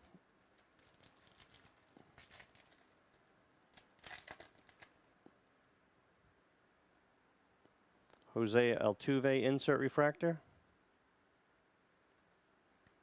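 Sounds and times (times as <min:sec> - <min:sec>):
trading cards rustling: 0:00.0 - 0:05.2.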